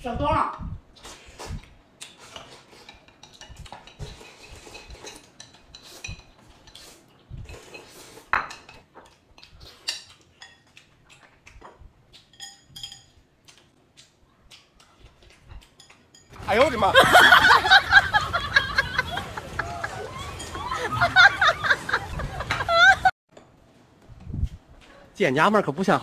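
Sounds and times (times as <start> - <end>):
utensils clicking against dishes: 2.0 - 16.7.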